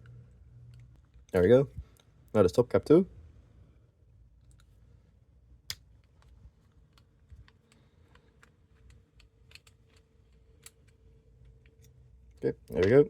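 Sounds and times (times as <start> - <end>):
small parts clicking and tapping: 5.6 - 13.0.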